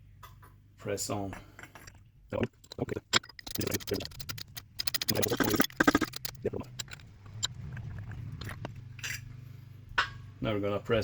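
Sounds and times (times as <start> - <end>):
low steady hum: 0.0 - 11.0
metallic clicks and rattles: 2.3 - 9.3.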